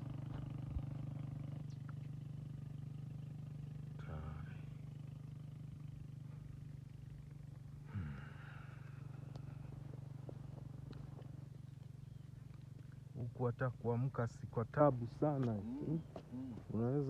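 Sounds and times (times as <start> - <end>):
small motorcycle engine running: 0.0 - 17.0
voice-like calls: 15.5 - 17.0.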